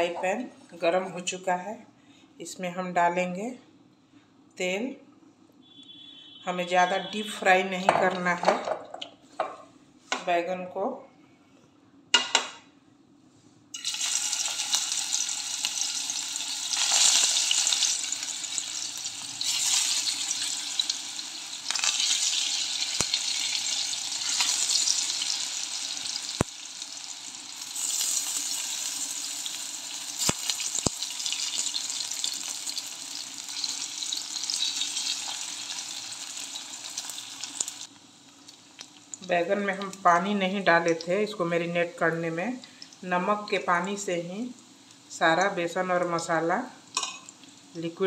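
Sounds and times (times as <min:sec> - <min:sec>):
eggplant sizzling in oil: 0:13.7 - 0:44.2.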